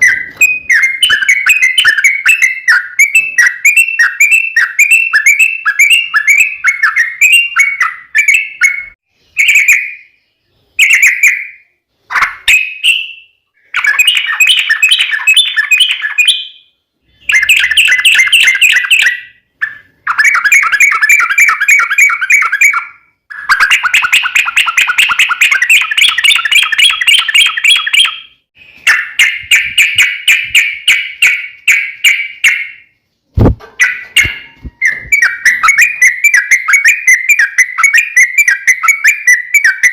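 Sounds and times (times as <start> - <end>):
bird singing rapid chattering trills: 17.2 - 32.9.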